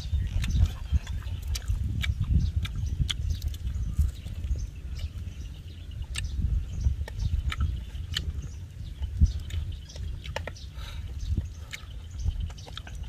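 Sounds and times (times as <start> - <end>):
person chewing food: 0.0 - 13.0
steady low rumble: 0.0 - 13.0
wet smacks and clicks: 0.2 - 3.8, 6.1 - 13.0.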